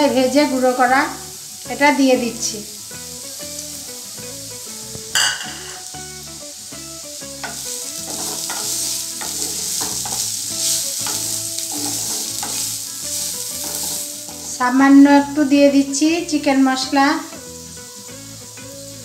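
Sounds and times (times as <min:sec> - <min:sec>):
potatoes sizzling in oil: 0:00.0 - 0:19.0
spatula scraping pan: 0:07.4 - 0:15.0.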